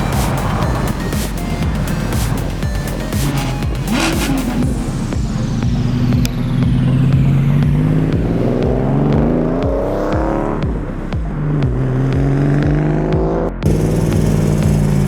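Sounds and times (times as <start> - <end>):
car accelerating hard: 0.0 - 15.0
low engine drone: 0.0 - 15.0.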